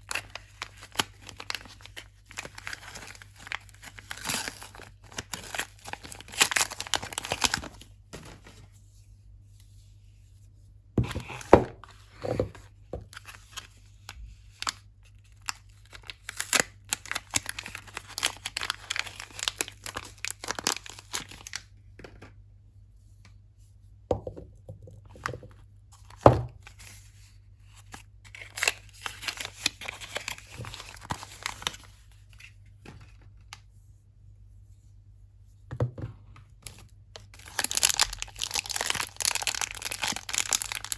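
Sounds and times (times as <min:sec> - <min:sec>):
packaging crinkling and tearing: 0:00.0 - 0:08.5, 0:14.5 - 0:21.6, 0:28.3 - 0:32.0, 0:36.7 - 0:40.9.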